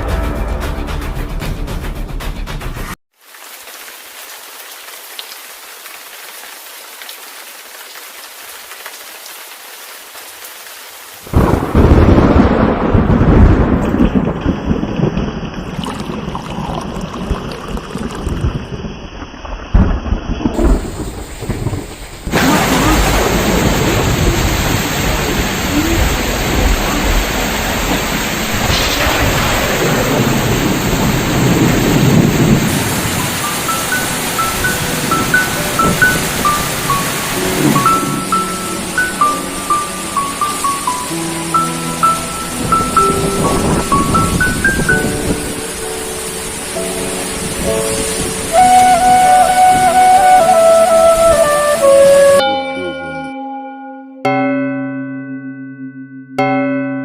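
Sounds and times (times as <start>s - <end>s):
rain falling: 3.1s - 52.4s
rolling thunder: 11.3s - 38.4s, 42.6s - 45.6s.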